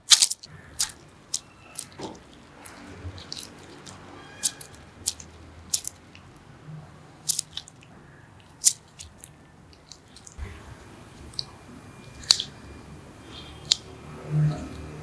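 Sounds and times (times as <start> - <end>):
clicks of small hard parts: 0.0 - 6.2, 7.3 - 10.4.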